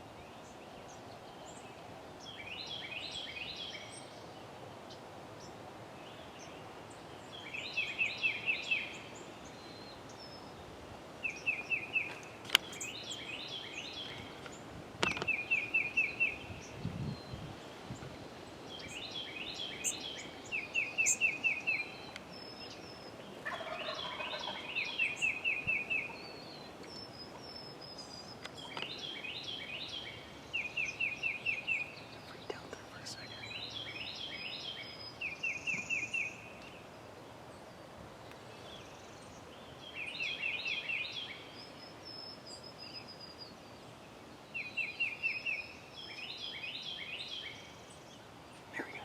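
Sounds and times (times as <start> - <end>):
turkey gobbling: 23.4 - 24.7.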